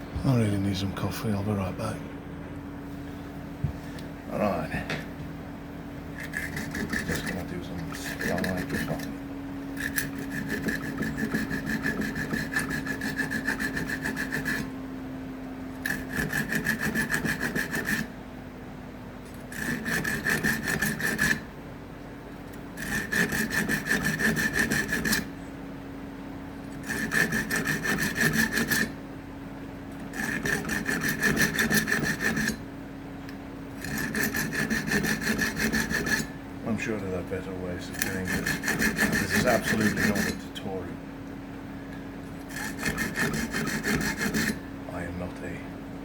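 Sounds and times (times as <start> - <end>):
hand saw cutting wood: 6.1 - 14.7, 15.8 - 18.1, 19.3 - 21.5, 22.8 - 25.3, 26.7 - 29.0, 30.0 - 32.6, 33.8 - 40.8, 42.4 - 45.2.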